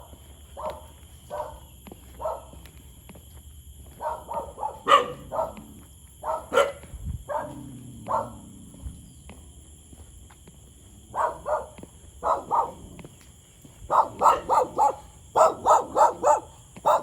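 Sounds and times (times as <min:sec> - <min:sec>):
dog barking: 0:00.0 - 0:02.6, 0:04.0 - 0:08.7, 0:11.1 - 0:13.0, 0:13.9 - 0:17.0.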